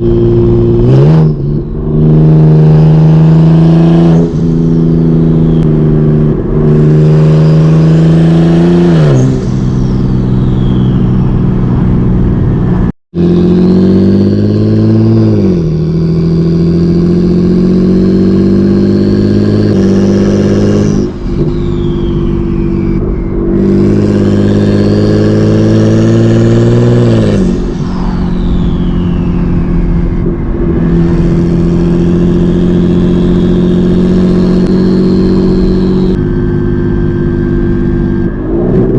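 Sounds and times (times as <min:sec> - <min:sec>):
car engine revving through gears: 0:00.0 - 0:38.9
turbo whistle: 0:03.9 - 0:05.9, 0:06.6 - 0:11.8, 0:18.0 - 0:36.2.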